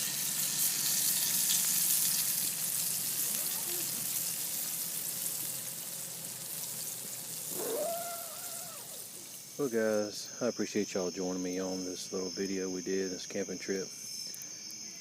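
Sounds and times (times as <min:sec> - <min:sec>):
fish sizzling in hot grease: 0:00.0 - 0:10.0.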